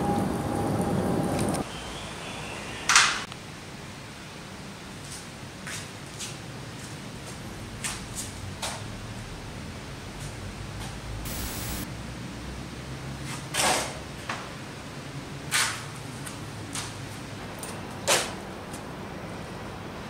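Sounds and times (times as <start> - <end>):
loud short hissing bursts: 11.3 - 11.9
tv static: 11.3 - 11.9.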